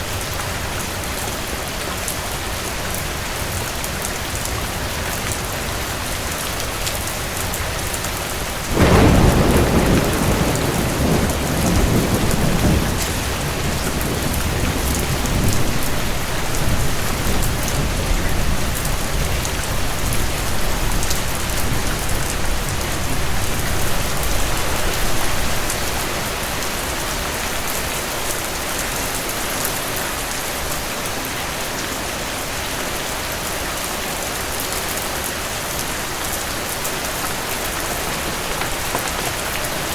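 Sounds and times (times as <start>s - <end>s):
steady rain: 0.0s - 39.9s
thunder clap and rumble: 8.7s - 25.8s, 37.2s - 39.9s.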